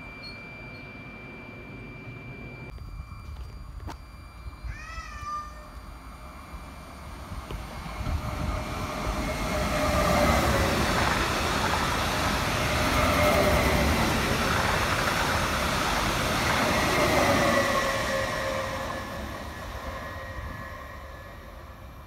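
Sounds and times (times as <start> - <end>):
train motor whine: 0.0 - 22.0
train wheels rumbling on rails: 6.7 - 22.0.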